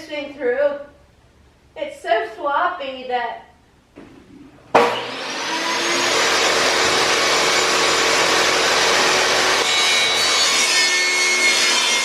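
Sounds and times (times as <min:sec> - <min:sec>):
electric power saw whining: 0:04.8 - 0:12.0.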